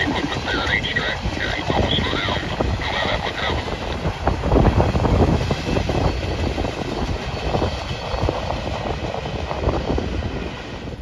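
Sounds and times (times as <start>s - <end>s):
freight cars rattling: 0.0s - 10.7s
train wheels clattering on rails: 3.7s - 10.9s.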